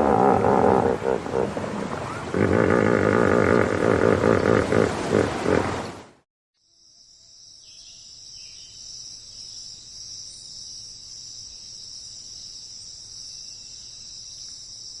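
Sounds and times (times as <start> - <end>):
insects trilling: 6.6 - 15.0.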